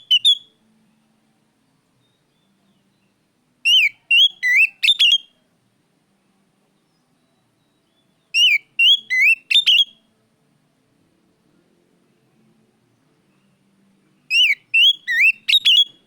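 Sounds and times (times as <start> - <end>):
bird singing whistled notes: 0.0 - 1.1, 2.0 - 5.4, 6.8 - 10.1, 14.2 - 16.0.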